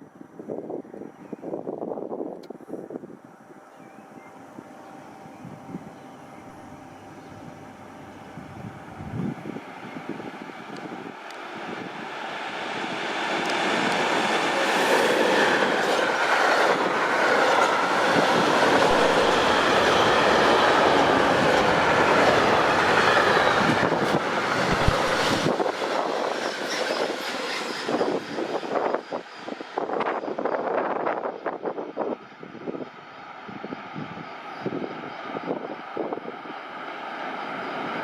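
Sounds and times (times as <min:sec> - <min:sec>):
train wheels clattering on track: 0:12.6 - 0:30.3.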